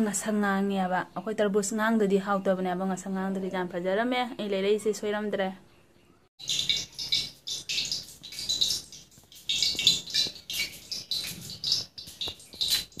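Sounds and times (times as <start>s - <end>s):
small birds chirping: 4.8s - 13.0s.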